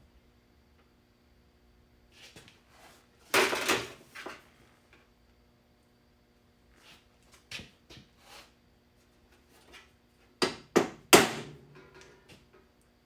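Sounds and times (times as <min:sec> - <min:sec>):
hammer striking center punch: 0:10.4 - 0:11.7.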